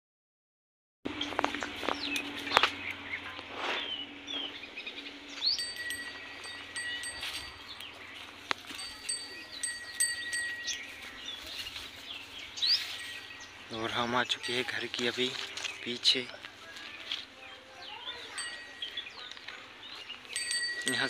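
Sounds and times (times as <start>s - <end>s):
birds chirping: 1.1s - 21.0s
high ringing tone: 5.2s - 15.7s, 18.1s - 19.6s, 20.2s - 21.0s.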